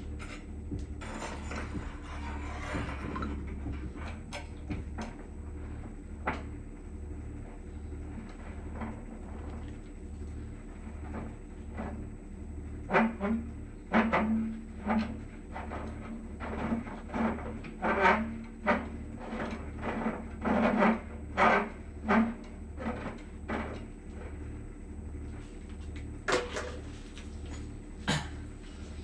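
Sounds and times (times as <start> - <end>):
pulsing machine hum: 0.0 - 29.0
tools and metal parts clunking: 26.3 - 27.7.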